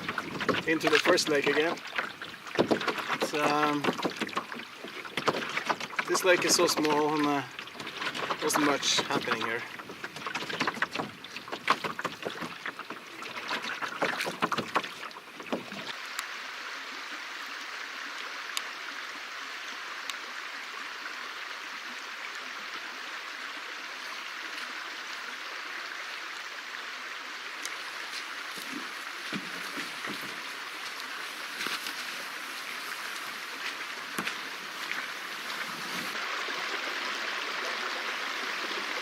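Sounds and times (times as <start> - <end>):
steady hiss of water: 0.0 - 10.6, 15.0 - 39.0
paddle splashing in water: 0.0 - 16.0, 27.6 - 36.9.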